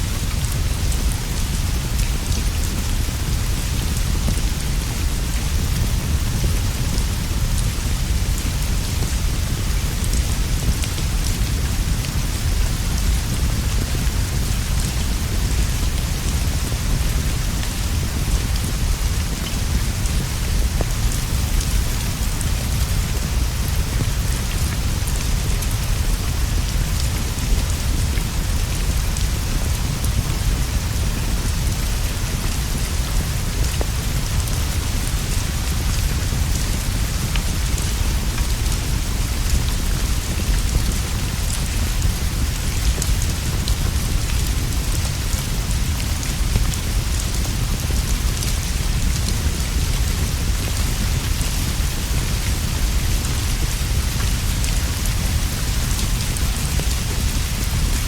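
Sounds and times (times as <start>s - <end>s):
rain on leaves and straw roof: 0.0s - 58.0s.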